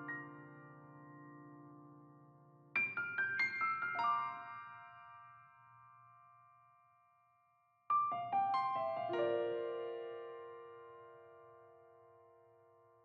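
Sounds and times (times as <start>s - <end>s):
piano music: 0.0s - 1.6s, 7.9s - 12.6s.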